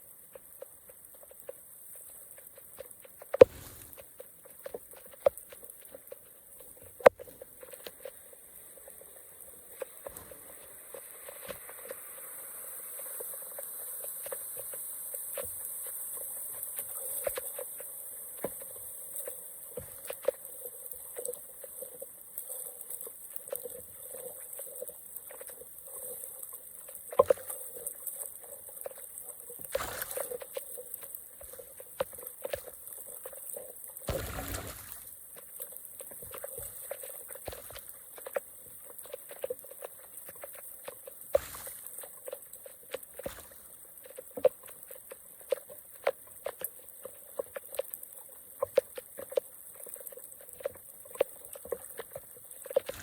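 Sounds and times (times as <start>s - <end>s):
small clicks and splashes: 0.0s - 53.0s.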